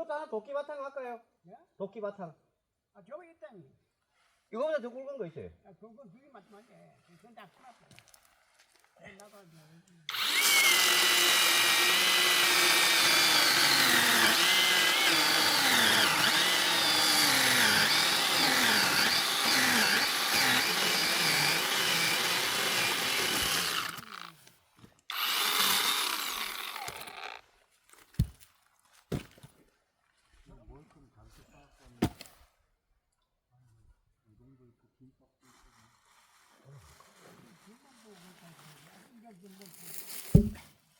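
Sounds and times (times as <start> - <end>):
chainsaw cutting through log: 10.1 - 24.5, 25.1 - 27.4, 28.2 - 28.4, 39.8 - 40.6.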